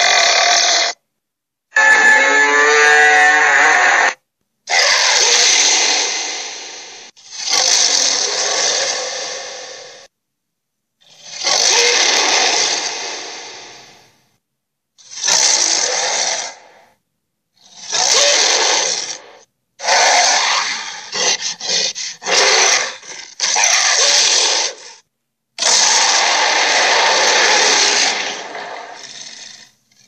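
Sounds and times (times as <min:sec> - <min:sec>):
creature growling: 0:00.0 - 0:01.0, 0:01.8 - 0:10.1, 0:11.1 - 0:14.0, 0:17.7 - 0:25.0, 0:25.6 - 0:29.7.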